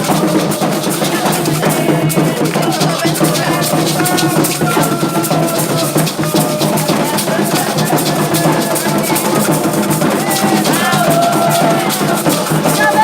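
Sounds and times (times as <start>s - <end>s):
group singing: 0.0s - 13.0s
hand drums beating: 0.0s - 13.0s.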